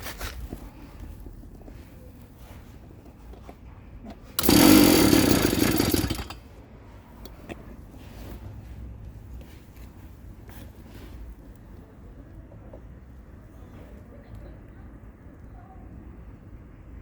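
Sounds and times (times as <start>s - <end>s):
small two-stroke engine buzzing: 4.4s - 6.4s.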